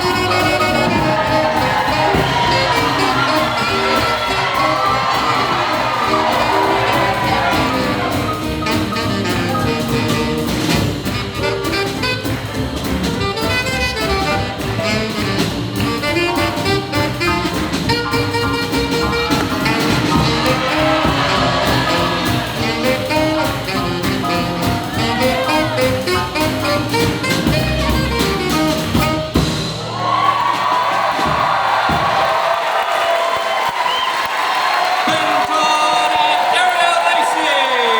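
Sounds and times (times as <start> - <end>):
swing jazz band playing: 0.0 - 33.0
crowd cheering: 0.0 - 37.9.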